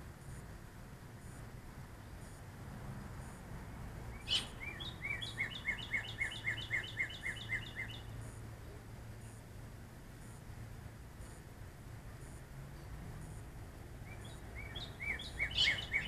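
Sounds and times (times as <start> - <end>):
steady low hum: 0.0 - 16.0
songbird singing: 4.0 - 10.2, 12.0 - 16.0.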